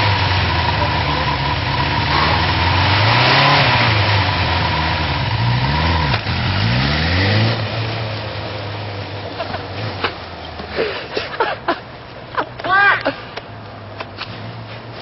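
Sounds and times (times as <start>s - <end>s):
motorcycle engine revving: 0.0s - 10.3s.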